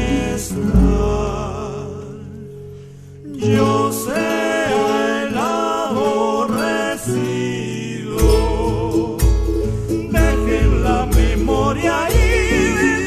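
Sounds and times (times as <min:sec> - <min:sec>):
voices singing with vibrato: 0:00.0 - 0:02.4, 0:03.3 - 0:13.0
deep bass notes: 0:00.0 - 0:02.5
guitar: 0:00.0 - 0:13.0.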